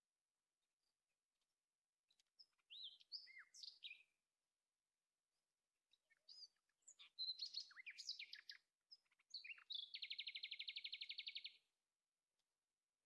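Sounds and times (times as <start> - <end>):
small bird singing: 2.1 - 4.4, 5.3 - 11.8.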